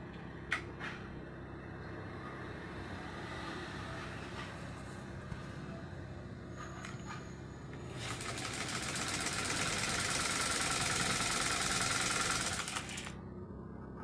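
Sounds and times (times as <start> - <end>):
sewing machine clattering: 8.0 - 13.2
low steady hum: 13.0 - 14.0.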